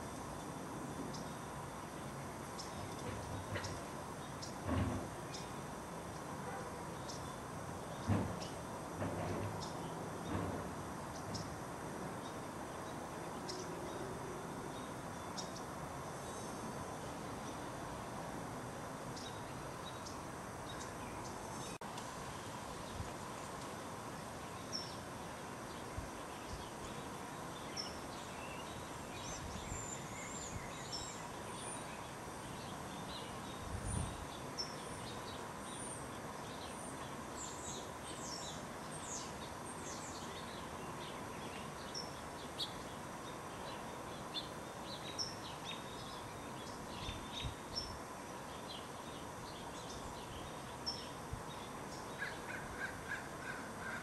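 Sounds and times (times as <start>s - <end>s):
birds chirping: 0.4s - 8.8s
lower repeated bird calls: 48.6s - 54.0s.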